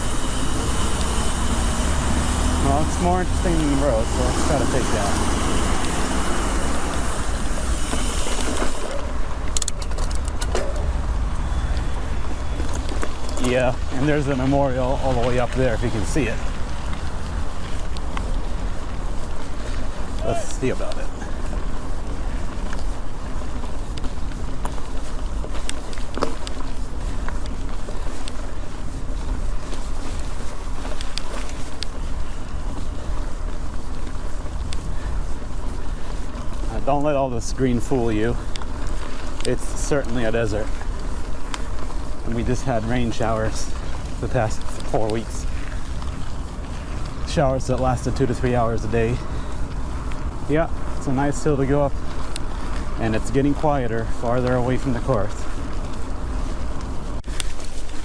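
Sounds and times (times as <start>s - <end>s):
bike clicks: 0.0s - 58.0s
bike tyre noise: 0.0s - 58.0s
road noise hiss: 0.0s - 58.0s
wind rumbling on microphone: 0.0s - 58.0s
sharp clicks: 3.0s - 17.1s.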